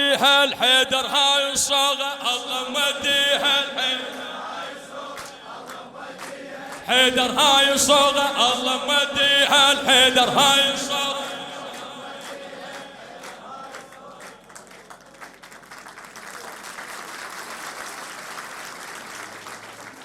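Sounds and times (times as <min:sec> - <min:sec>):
chanting voice: 0:00.0 - 0:14.8
audience applauding: 0:04.4 - 0:07.5, 0:11.2 - 0:20.0.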